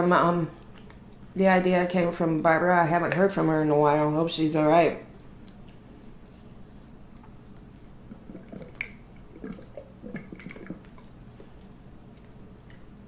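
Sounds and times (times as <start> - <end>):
wet chewing and mouth smacks: 0.6 - 1.4, 5.1 - 13.0.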